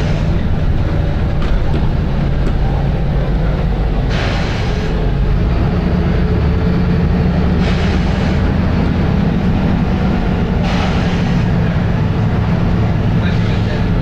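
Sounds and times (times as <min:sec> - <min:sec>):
bus diesel engine running: 0:00.0 - 0:14.0
air brake hisses: 0:04.1 - 0:05.0, 0:07.6 - 0:08.5, 0:10.6 - 0:11.5.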